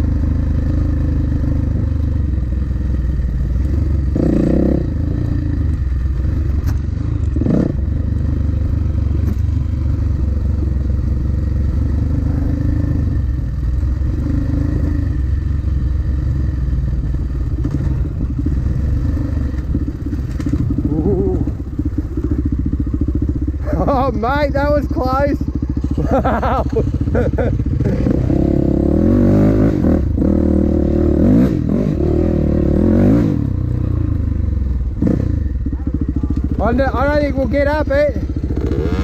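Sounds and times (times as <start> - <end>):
dirt bike engine running: 0.0 - 39.0
knocks and clatter from bike: 6.4 - 7.7, 9.1 - 9.7, 17.5 - 18.6, 19.4 - 20.9.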